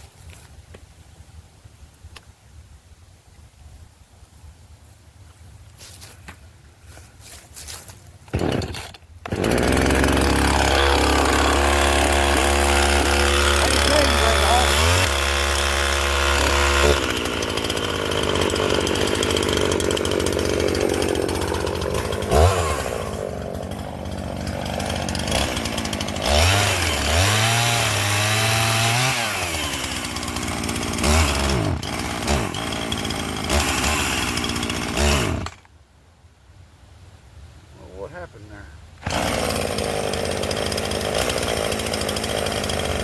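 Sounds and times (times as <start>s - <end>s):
chainsaw cutting and revving: 8.3s - 35.6s, 39.0s - 43.0s.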